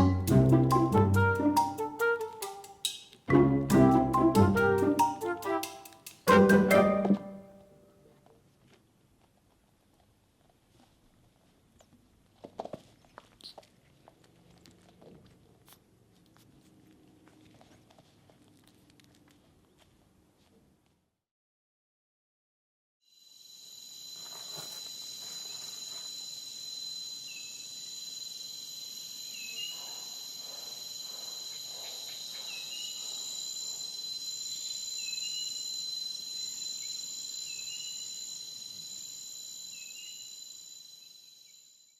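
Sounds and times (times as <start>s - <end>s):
insects trilling: 23.1s - 41.9s.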